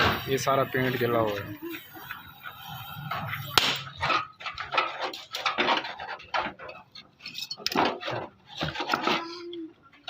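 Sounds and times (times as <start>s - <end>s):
metal tools clattering: 3.8s - 9.4s.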